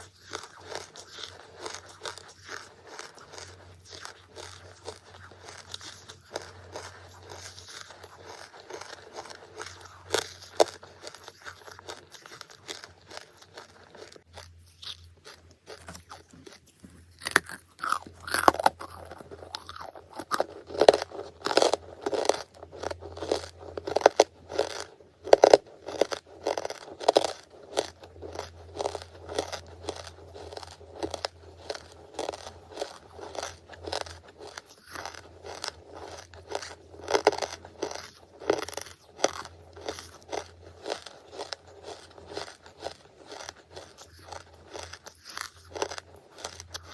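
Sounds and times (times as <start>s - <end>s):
crunching and chewing charcoal: 0.0s - 46.9s.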